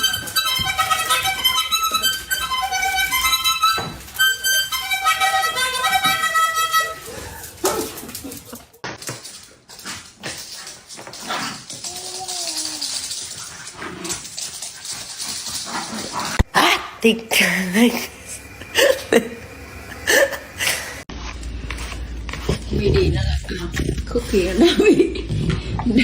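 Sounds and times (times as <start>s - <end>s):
quick melody of short notes: 0.0s - 7.3s
rustling: 0.0s - 16.4s.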